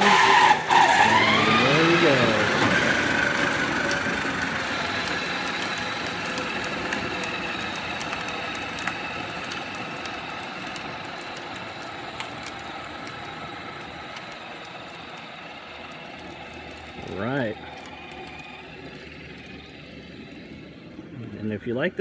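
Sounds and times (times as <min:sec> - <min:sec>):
electric motor whining: 0:00.0 - 0:22.0
wheels rumbling on ground: 0:00.0 - 0:22.0
small clicks: 0:05.0 - 0:17.1.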